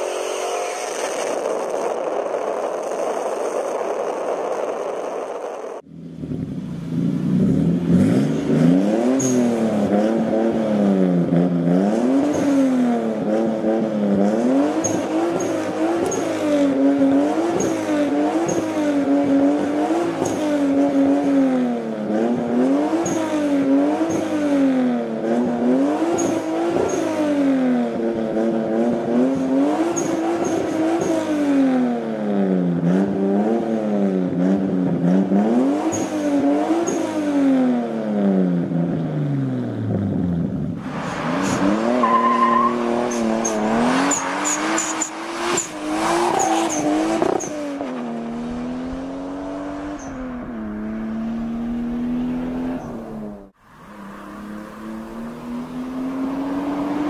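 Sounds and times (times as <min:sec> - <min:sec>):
car engine droning while driving: 0:00.0 - 0:57.0
car engine revving: 0:00.0 - 0:57.0
tyre squeal: 0:09.2 - 0:09.5, 0:41.0 - 0:47.7.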